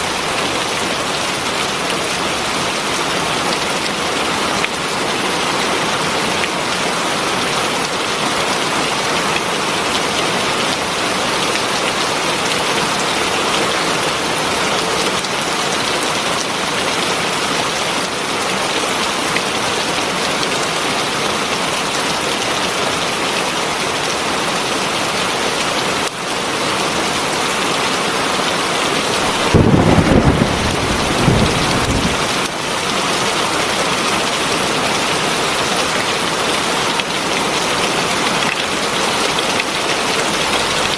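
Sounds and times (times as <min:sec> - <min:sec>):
heavy rain falling: 0:00.0 - 0:40.9
low rumble of thunder: 0:29.3 - 0:32.5.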